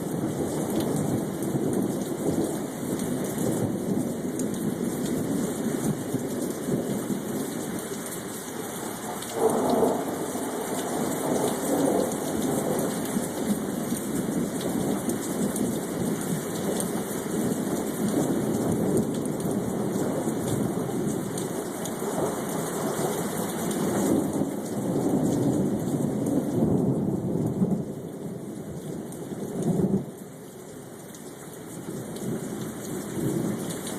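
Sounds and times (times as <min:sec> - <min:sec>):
steady rain: 0:00.0 - 0:33.9
thunder rumbling: 0:08.9 - 0:16.8.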